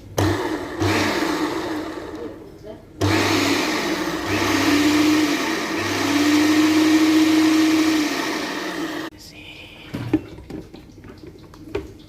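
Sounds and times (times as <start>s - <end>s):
kitchen blender motor whining: 0.1s - 9.1s.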